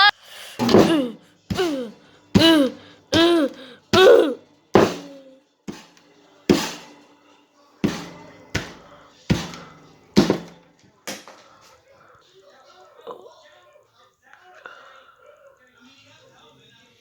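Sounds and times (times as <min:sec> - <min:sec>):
person crying out in pain: 0:00.0 - 0:05.2
hammer blows: 0:00.0 - 0:07.0, 0:07.8 - 0:10.7.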